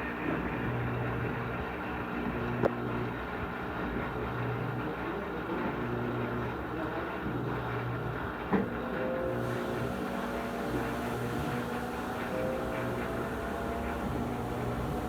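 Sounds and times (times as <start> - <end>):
washing machine spinning: 9.2 - 15.0.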